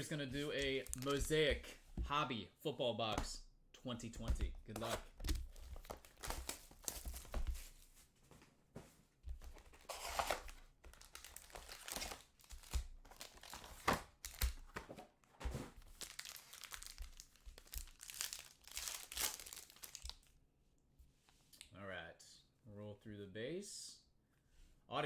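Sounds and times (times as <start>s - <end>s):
card pack wrappers tearing and crinkling: 0.4s - 1.5s, 4.8s - 7.5s, 9.5s - 14.8s, 15.8s - 20.3s.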